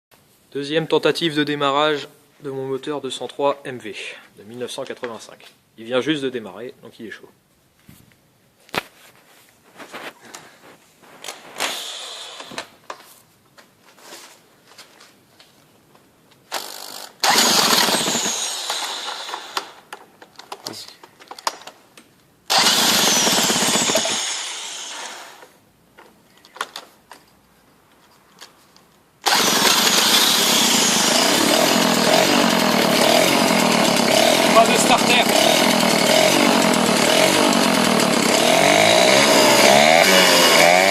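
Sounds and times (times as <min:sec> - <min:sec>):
moped engine starting: 0:17.2 - 0:19.5, 0:22.5 - 0:25.3, 0:29.2 - 0:40.9.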